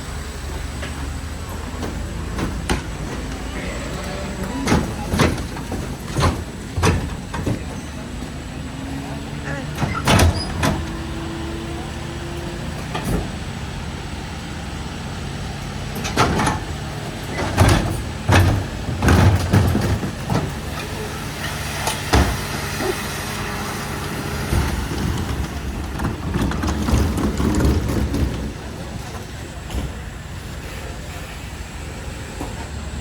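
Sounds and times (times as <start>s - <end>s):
diesel engine running: 0.0s - 33.0s
loud metal bangs and clanks: 15.3s - 30.0s.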